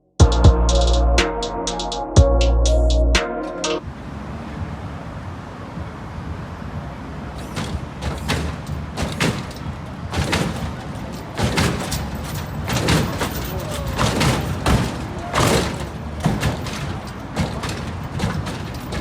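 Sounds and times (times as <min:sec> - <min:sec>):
sharp knocks and bangs: 0:07.3 - 0:19.0.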